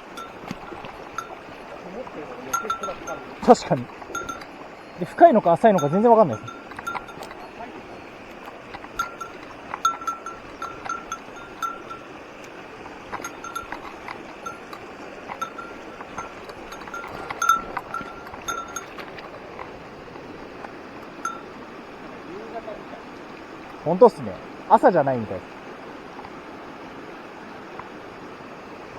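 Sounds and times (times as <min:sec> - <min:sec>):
small bell clinking: 0:00.0 - 0:19.6, 0:21.0 - 0:21.6
mountain stream rushing: 0:00.0 - 0:28.9.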